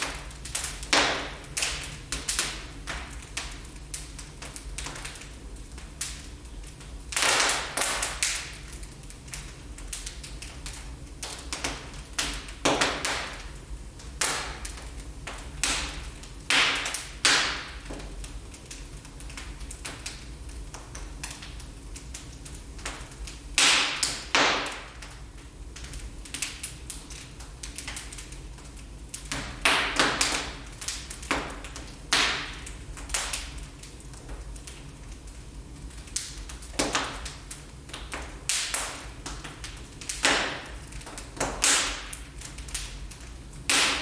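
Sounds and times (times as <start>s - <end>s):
wood fire crackling: 0.0s - 44.0s.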